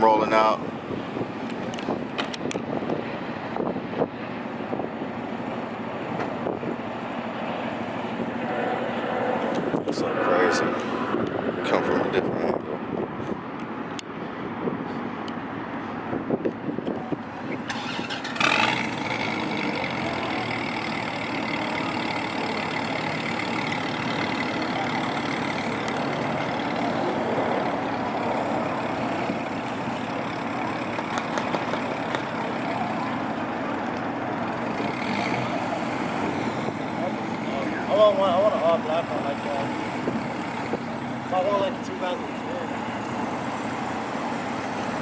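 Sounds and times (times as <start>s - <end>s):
car engine starting and running: 17.2s - 45.0s.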